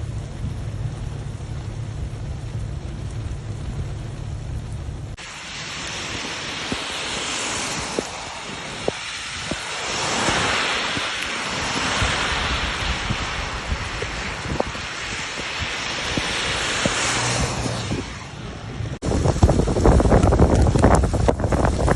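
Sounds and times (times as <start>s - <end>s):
rushing rainstorm water: 0.0s - 21.9s
wind buffeting microphone: 5.5s - 21.9s
raindrops tapping: 19.2s - 21.9s.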